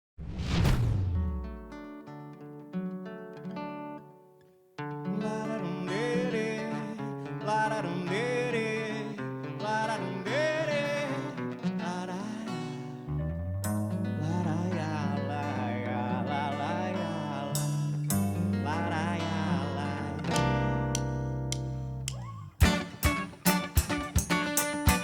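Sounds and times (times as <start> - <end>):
plucked acoustic guitar: 1.1 - 25.0
wavering lead melody: 13.1 - 25.0
band playing: 22.6 - 25.0.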